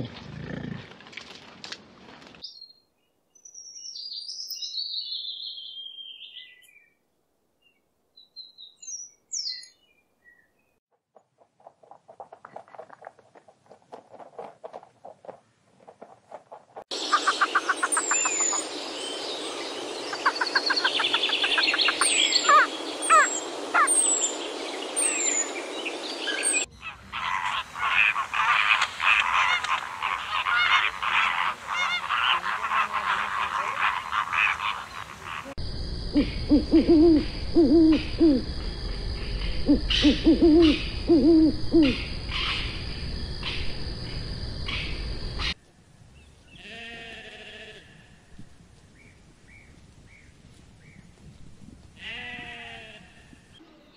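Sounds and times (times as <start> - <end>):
small birds chirping: 2.4 - 7.0, 7.6 - 10.8, 16.9 - 35.6
flamingos honking: 26.7 - 35.6
low hooting bird calls: 36.2 - 38.6, 39.3 - 42.8.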